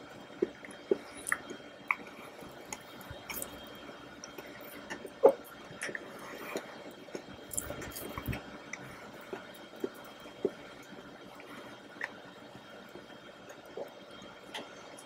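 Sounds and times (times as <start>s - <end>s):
squishy chewing: 0.3s - 15.0s
mouth clicks and smacks: 0.4s - 2.1s, 4.2s - 10.6s.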